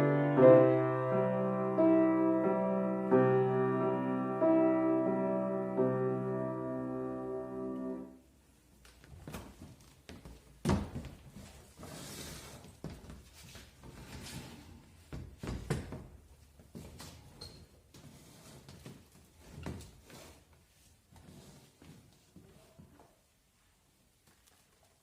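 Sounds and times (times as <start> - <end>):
held instrumental chord: 0.0 - 8.2.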